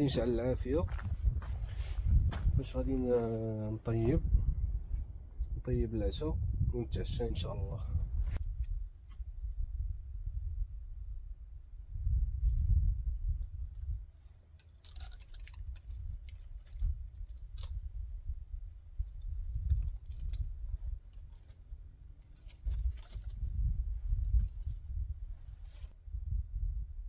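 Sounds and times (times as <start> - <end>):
wind gusting against microphone: 0.0 - 14.2, 15.0 - 27.0
sharp crackles and snaps: 14.6 - 17.8, 19.1 - 23.6.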